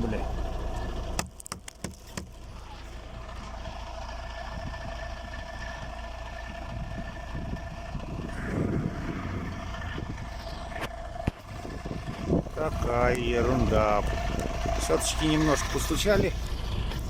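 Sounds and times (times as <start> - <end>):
truck diesel engine drone: 0.0 - 17.0
low rumble: 2.3 - 17.0
steady whine: 2.3 - 17.0.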